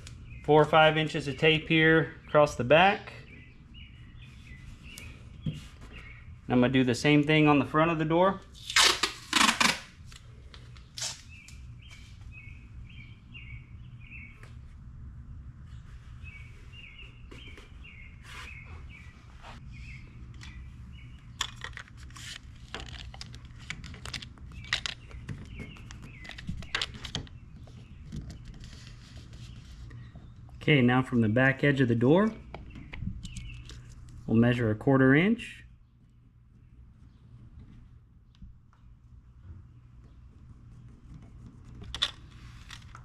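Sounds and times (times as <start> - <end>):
steady low hum: 0.0 - 43.0
bird chirping: 0.1 - 6.3, 11.3 - 14.5, 15.8 - 21.4, 24.5 - 28.6, 32.2 - 33.9
tape being torn and pressed: 8.6 - 10.2, 10.9 - 11.6.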